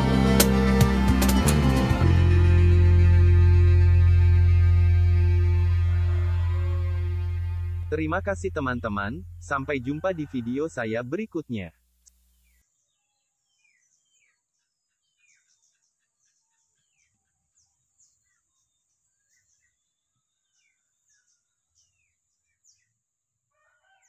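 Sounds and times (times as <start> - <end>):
faint birdsong chirps: 10.8 - 24.0.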